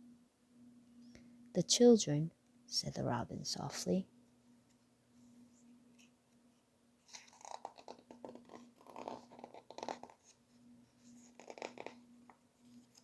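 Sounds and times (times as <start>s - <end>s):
low steady hum: 0.0s - 7.4s, 8.1s - 13.0s
paper pages rustling: 7.0s - 13.0s.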